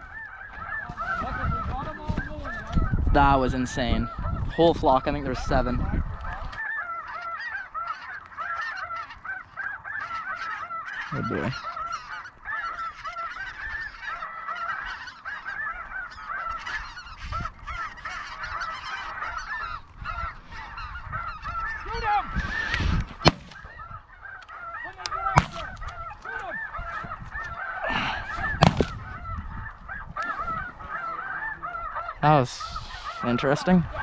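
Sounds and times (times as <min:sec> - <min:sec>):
geese honking: 0:00.0 - 0:34.0
shotgun shots: 0:23.2 - 0:23.6, 0:25.4 - 0:25.8, 0:28.6 - 0:29.0.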